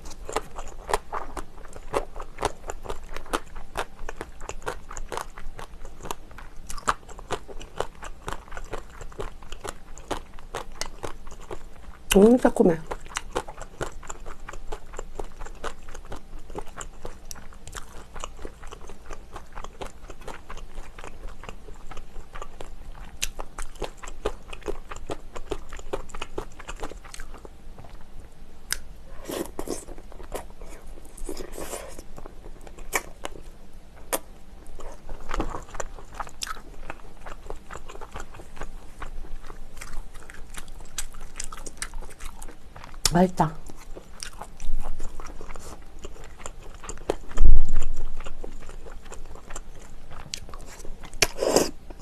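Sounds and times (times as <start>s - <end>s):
person chewing and biting: 0.0s - 11.7s, 12.9s - 27.5s, 28.7s - 33.4s, 34.1s - 52.0s.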